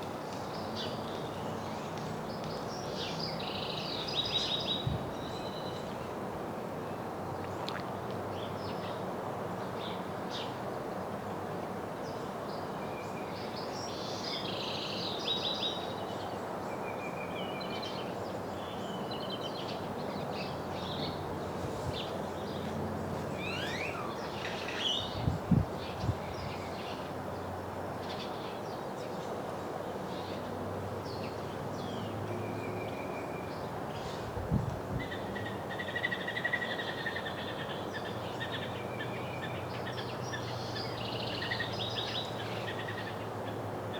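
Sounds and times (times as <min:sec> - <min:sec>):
steady background hiss: 0:00.0 - 0:43.9.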